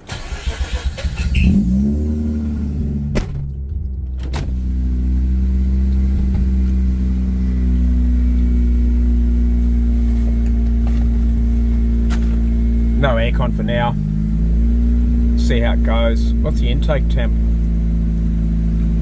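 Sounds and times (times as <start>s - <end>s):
rotary engine starting and idling: 0.0s - 7.0s.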